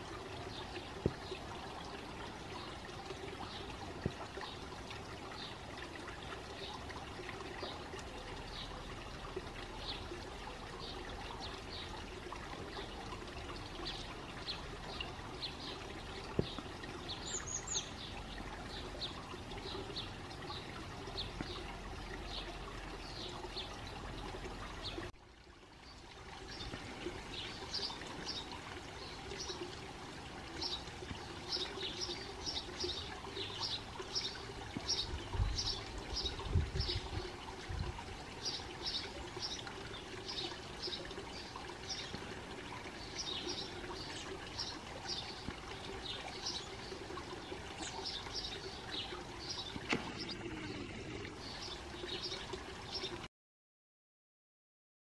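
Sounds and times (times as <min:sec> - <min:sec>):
songbird chirping: 0:13.8 - 0:24.0.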